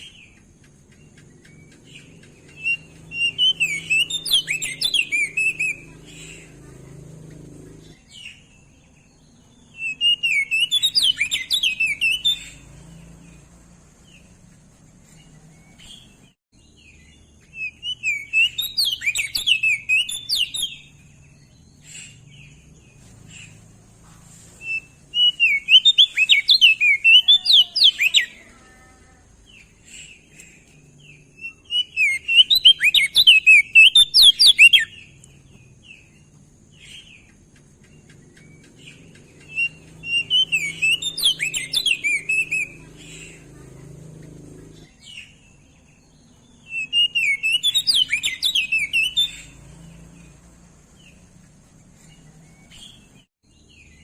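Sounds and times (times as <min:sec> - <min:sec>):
bird warbling song: 0:00.0 - 0:54.0.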